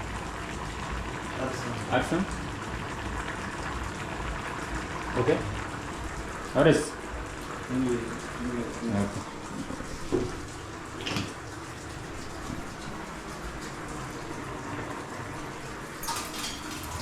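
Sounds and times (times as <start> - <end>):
water running: 0.4 - 17.0
kitchen utensils knocking: 16.0 - 17.0.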